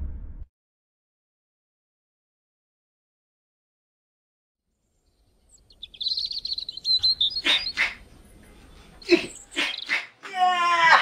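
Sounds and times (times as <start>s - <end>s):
birds chirping: 4.8s - 10.2s.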